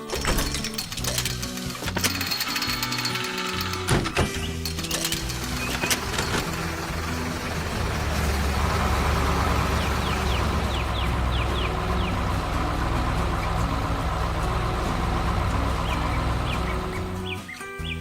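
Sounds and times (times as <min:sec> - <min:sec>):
cartoon background music: 0:00.0 - 0:18.0
engine-like rumble: 0:04.6 - 0:17.4.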